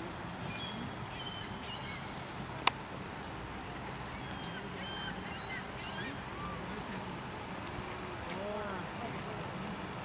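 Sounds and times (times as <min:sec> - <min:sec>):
small birds chirping: 0:00.4 - 0:06.7.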